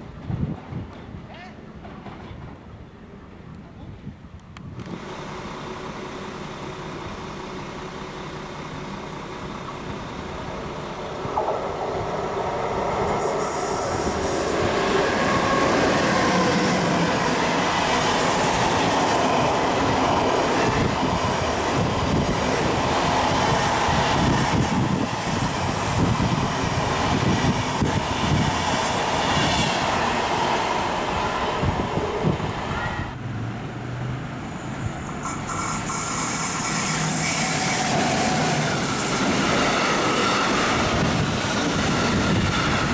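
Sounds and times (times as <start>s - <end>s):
train rolling past: 0.0s - 4.0s, 4.8s - 42.9s
wheel squeals: 24.7s - 26.4s, 34.5s - 42.9s.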